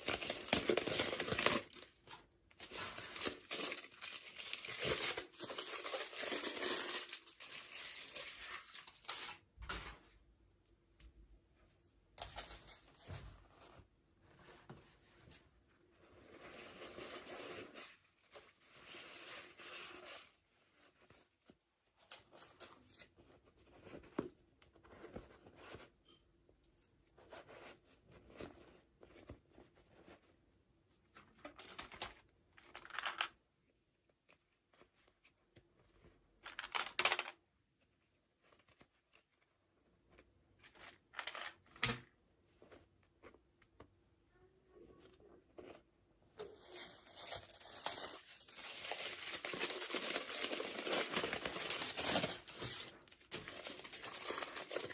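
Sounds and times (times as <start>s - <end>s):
packaging being torn and crinkled: 0.0s - 2.0s, 2.6s - 9.4s, 46.4s - 54.9s.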